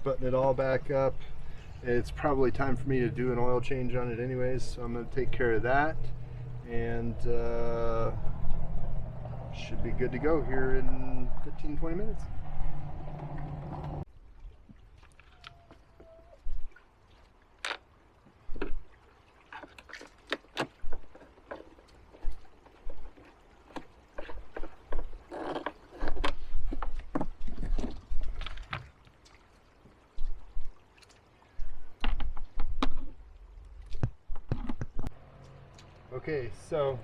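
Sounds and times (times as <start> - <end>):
low handling rumble: 0.0 - 14.1.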